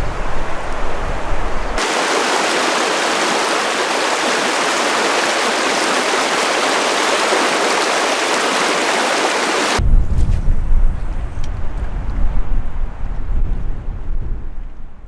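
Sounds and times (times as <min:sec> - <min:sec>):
river water rushing: 0:01.8 - 0:09.8.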